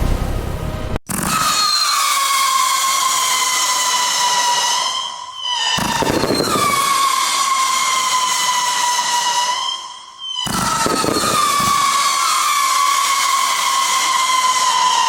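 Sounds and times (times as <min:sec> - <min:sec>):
firework launch thump: 0:00.0 - 0:01.6
firework whistling shots: 0:01.0 - 0:15.0.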